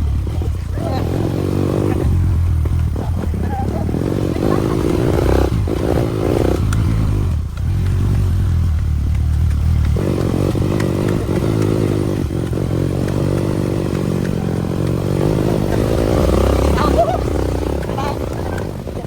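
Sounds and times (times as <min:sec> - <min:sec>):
motorcycle engine under load: 0:00.0 - 0:19.0.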